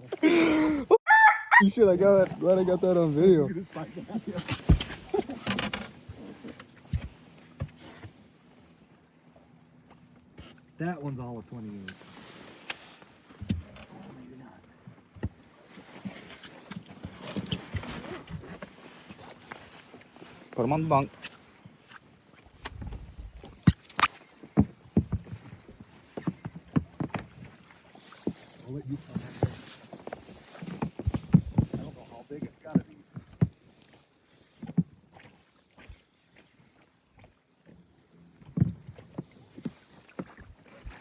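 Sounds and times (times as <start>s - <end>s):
knocks and thumps in boat: 4.4s - 8.2s, 24.4s - 27.6s, 29.2s - 33.6s, 34.6s - 36.0s, 38.4s - 41.0s.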